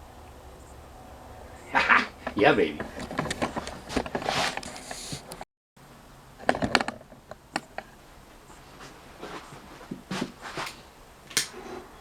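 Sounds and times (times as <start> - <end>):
objects being handled: 2.2 - 5.4.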